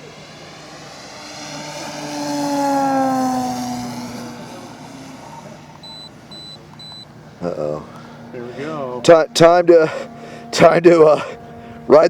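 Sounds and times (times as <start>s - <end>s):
model plane propeller buzzing: 0.0s - 12.0s
short high-pitched beeps: 5.8s - 7.1s.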